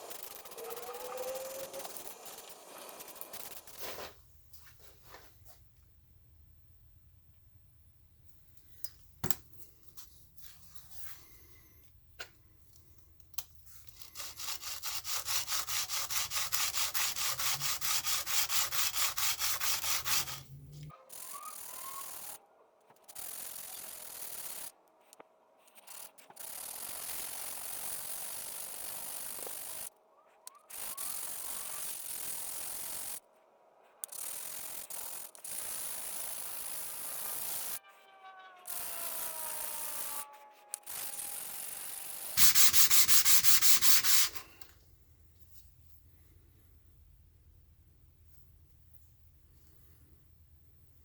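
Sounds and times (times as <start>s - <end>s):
spray can hissing: 0.0s - 4.0s, 14.2s - 20.4s, 42.4s - 44.6s
spray can shaken rattling: 42.4s - 44.5s.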